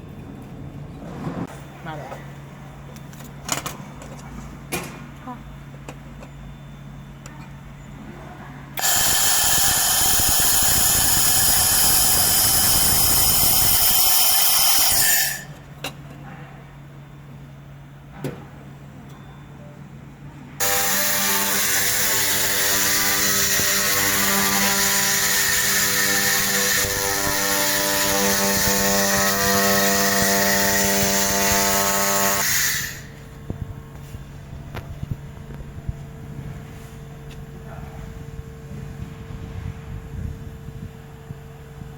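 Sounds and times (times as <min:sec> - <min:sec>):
machine low hum: 0:00.0 - 0:41.9
laser machine hissing on metal: 0:08.8 - 0:15.5
laser welder hissing: 0:08.8 - 0:15.6, 0:20.6 - 0:33.2.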